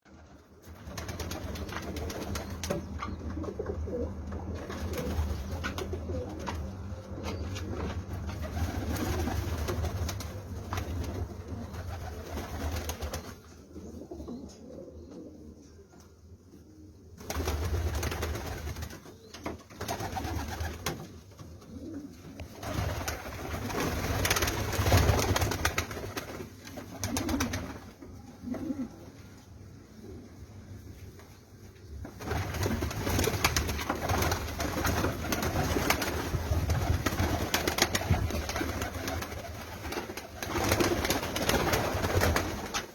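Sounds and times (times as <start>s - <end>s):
pigeons cooing: 1.6s - 9.4s, 13.7s - 15.9s, 21.5s - 25.4s, 28.3s - 29.2s.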